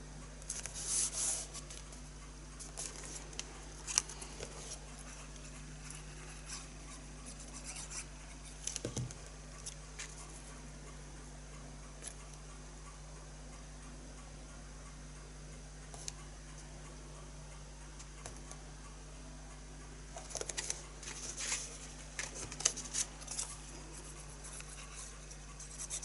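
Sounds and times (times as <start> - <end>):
faint low hum: 0.0 - 26.0
paper rustling: 2.6 - 6.7, 20.2 - 23.6.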